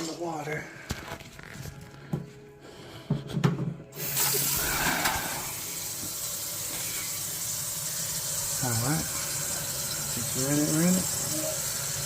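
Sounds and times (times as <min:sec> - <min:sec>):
faucet water running into sink: 0:04.0 - 0:12.0.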